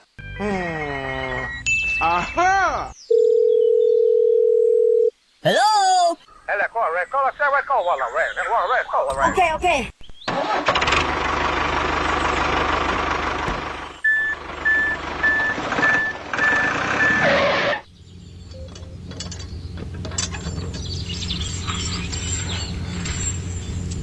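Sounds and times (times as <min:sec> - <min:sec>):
heavy vehicle engine rumble: 0:10.4 - 0:24.0
reversing alarm beeping: 0:14.0 - 0:17.3.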